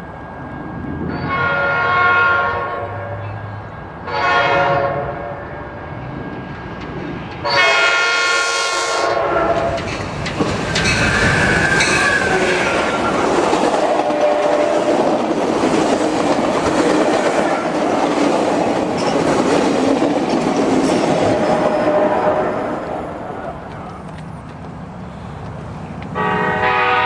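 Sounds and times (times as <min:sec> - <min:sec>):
train horn blast: 0:01.2 - 0:05.6, 0:07.4 - 0:09.8, 0:13.8 - 0:14.9, 0:21.3 - 0:22.8, 0:26.1 - 0:27.0
train wheels clattering on rails: 0:09.4 - 0:22.3, 0:23.4 - 0:26.3.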